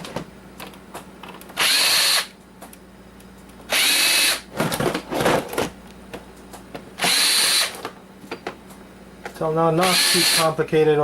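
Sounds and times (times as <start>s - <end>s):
cordless drill motor whine: 1.6s - 2.3s, 3.7s - 4.4s, 7.0s - 7.8s, 9.8s - 10.5s.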